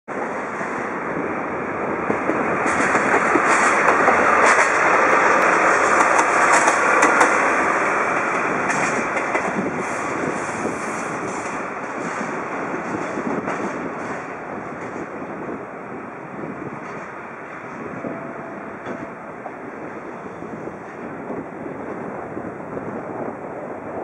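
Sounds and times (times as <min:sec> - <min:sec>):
train wheels on rails: 0:00.1 - 0:24.0
wheels clacking over rail joints: 0:02.1 - 0:15.0.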